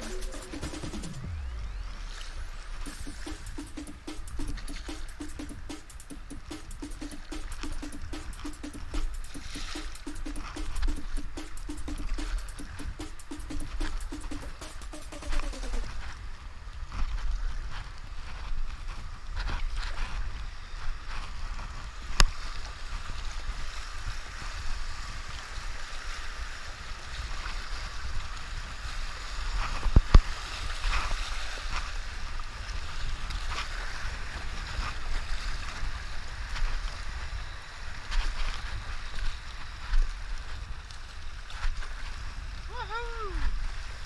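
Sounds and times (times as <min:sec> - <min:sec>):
river rapids rushing: 0:00.0 - 0:16.0.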